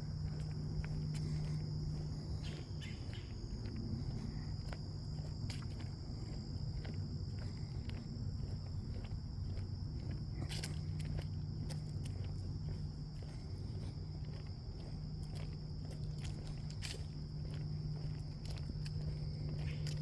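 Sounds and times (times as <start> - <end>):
footsteps on a path: 0.0 - 20.0
insects trilling: 0.0 - 20.0
steady low hum: 0.0 - 20.0.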